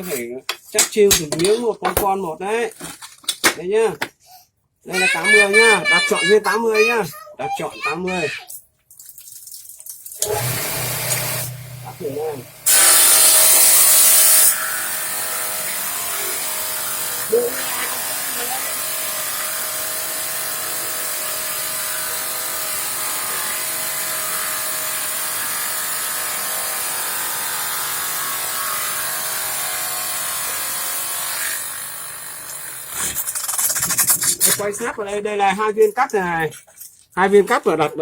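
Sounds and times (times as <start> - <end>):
tile saw grinding: 0.0 - 4.2, 12.7 - 35.0.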